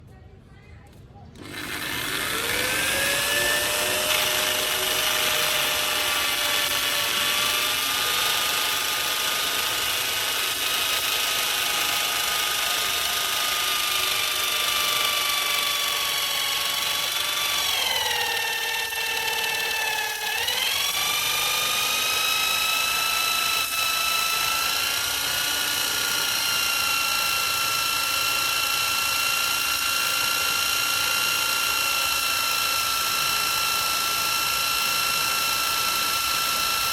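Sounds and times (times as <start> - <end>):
power tool motor whining: 1.4 - 36.9.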